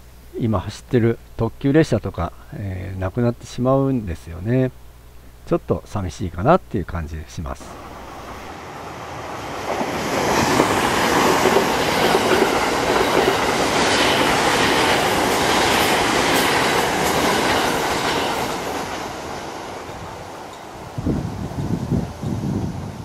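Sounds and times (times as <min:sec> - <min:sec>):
electric train passing at speed: 0:07.6 - 0:23.0.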